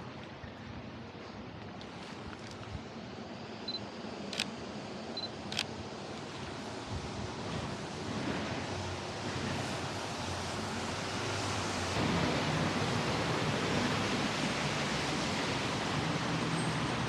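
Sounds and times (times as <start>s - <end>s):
rain hissing: 7.7s - 17.0s.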